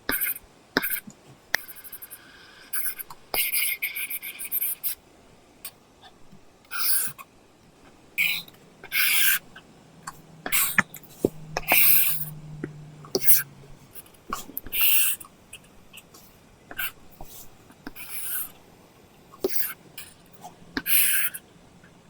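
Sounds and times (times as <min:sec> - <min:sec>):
faint low hum: 0:00.0 - 0:22.0
pencil scratching on tablet screen: 0:00.1 - 0:05.0, 0:06.7 - 0:07.2, 0:08.2 - 0:12.4, 0:13.1 - 0:15.2, 0:16.7 - 0:18.6, 0:19.4 - 0:21.4.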